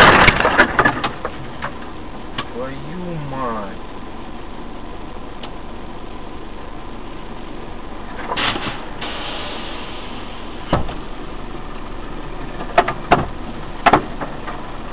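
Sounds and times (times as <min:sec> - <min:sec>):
car engine idling: 0:00.0 - 0:14.9
sharp clicks and knocks: 0:12.5 - 0:14.6.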